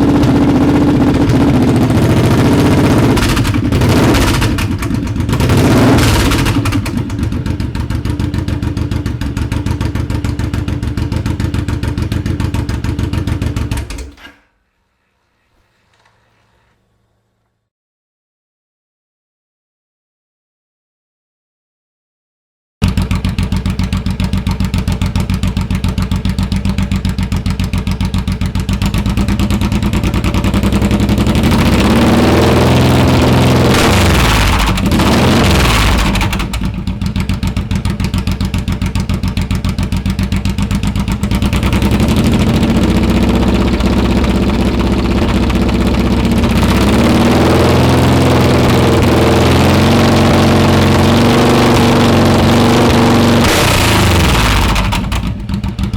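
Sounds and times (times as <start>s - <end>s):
motorcycle engine idling and revving: 0.0s - 14.3s, 22.8s - 55.9s.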